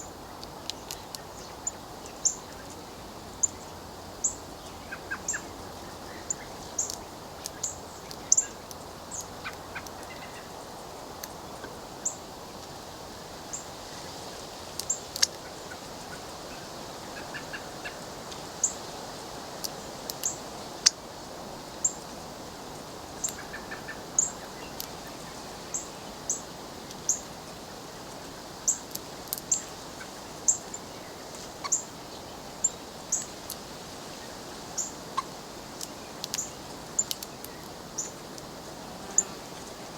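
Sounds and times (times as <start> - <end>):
birds chip notes: 0.0 - 10.5, 23.2 - 27.3, 34.7 - 38.5.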